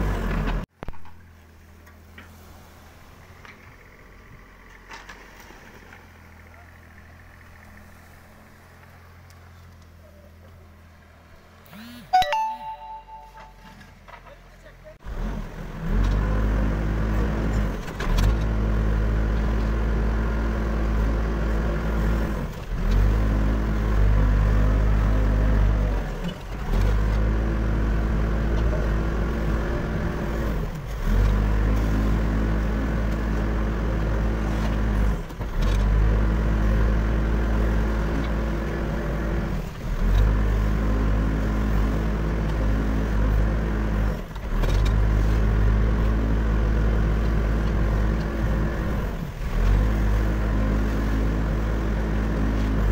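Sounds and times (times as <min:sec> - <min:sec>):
diesel engine running: 0:00.0 - 0:12.2.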